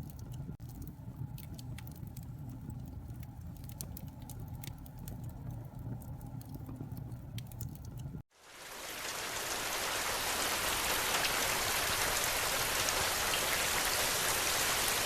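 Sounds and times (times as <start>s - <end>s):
wood fire crackling: 0.0s - 15.0s
heavy rain: 8.4s - 15.0s.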